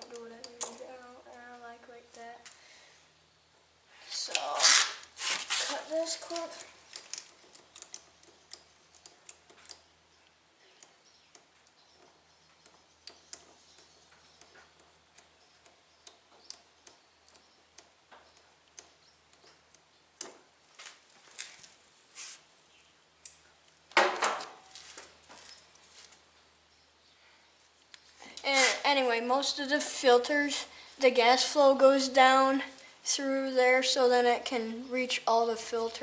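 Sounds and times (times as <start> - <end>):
loud scrape: 4.5 - 5.9
small clicks and taps of hands: 6.2 - 21.5.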